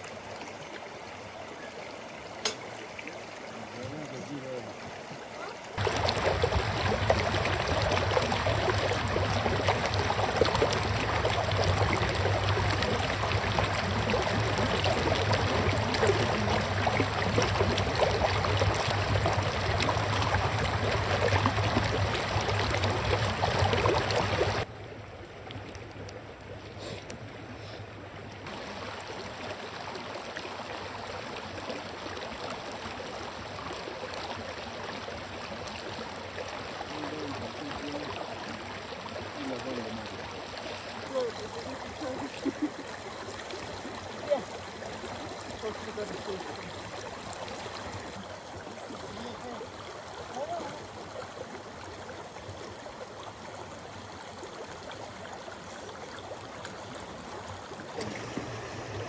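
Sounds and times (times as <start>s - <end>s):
river water rushing over rocks: 5.6s - 24.7s.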